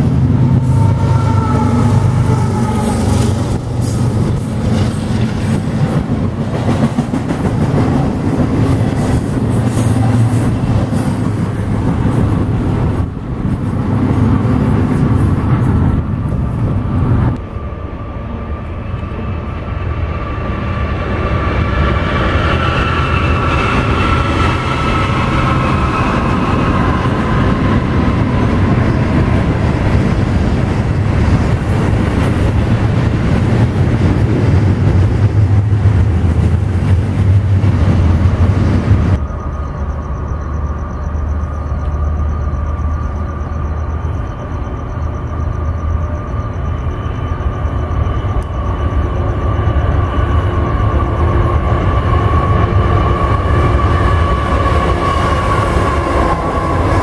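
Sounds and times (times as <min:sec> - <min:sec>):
train rumbling: 0:00.0 - 0:57.0
faint pitched tones: 0:39.2 - 0:52.6.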